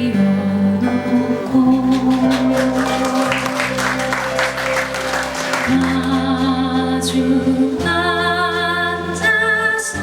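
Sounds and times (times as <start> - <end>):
live band playing chords: 1.4 - 6.5.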